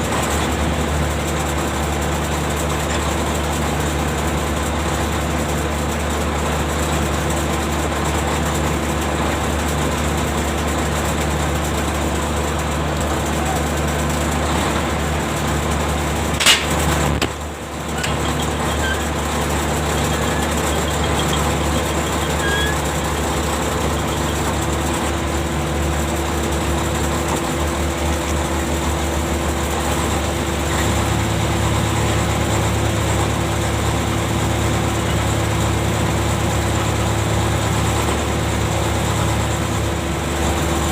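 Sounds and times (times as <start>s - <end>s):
ship machinery hum: 8.3s - 40.5s
sharp metal clank: 16.4s - 17.3s.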